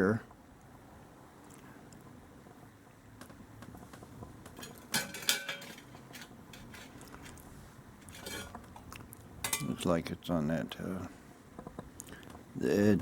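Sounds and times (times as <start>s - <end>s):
metal parts clinking and scraping: 4.6s - 7.4s, 8.0s - 8.6s.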